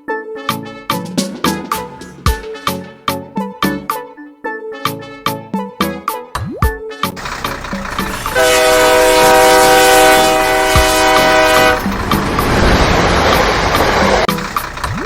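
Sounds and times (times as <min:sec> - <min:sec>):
horn blast: 0:00.5 - 0:03.4, 0:08.0 - 0:14.3.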